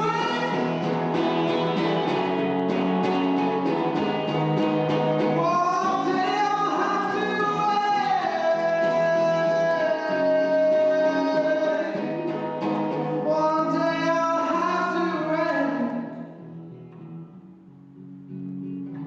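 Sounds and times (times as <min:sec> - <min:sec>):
acoustic guitar: 0:00.0 - 0:19.0
person singing long notes: 0:05.4 - 0:12.4.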